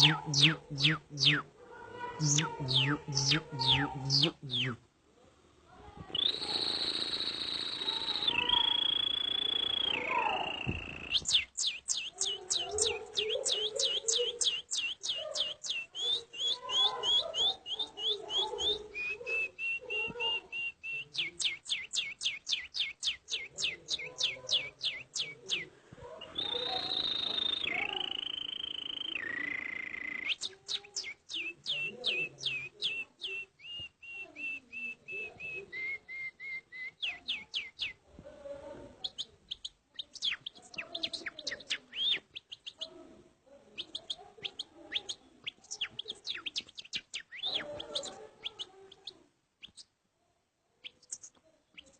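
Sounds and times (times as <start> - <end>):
man whistling birdsong: 0.0 - 1.5, 6.2 - 12.4.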